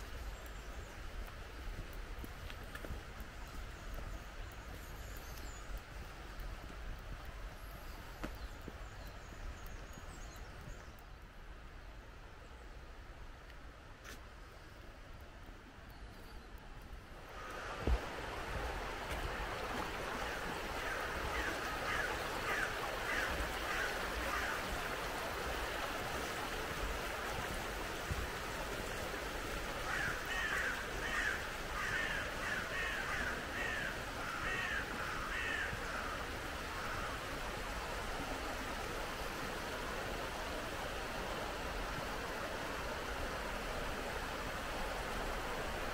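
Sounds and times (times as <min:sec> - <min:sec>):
flowing water rushing: 0:00.0 - 0:15.9, 0:16.5 - 0:45.9
crows cawing: 0:20.2 - 0:24.6, 0:29.8 - 0:37.2.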